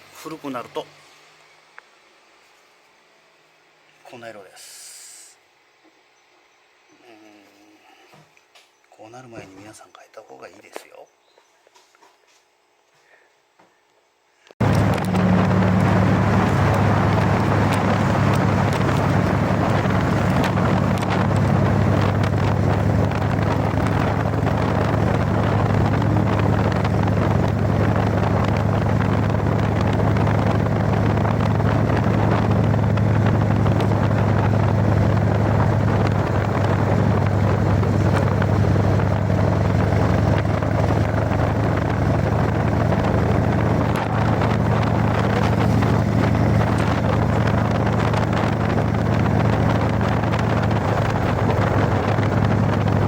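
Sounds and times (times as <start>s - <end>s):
motorcycle engine running: 14.6s - 53.0s
wind on microphone: 14.6s - 53.0s.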